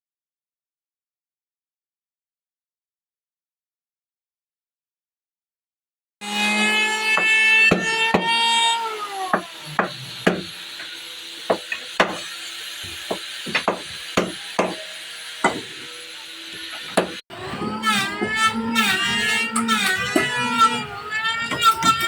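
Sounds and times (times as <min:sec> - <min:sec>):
electric planer motor whining: 0:06.2 - 0:22.0.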